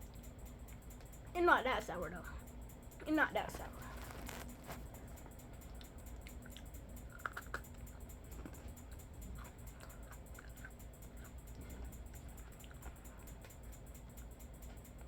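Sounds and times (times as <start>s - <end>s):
person chewing crunchy cookie: 3.5s - 15.0s.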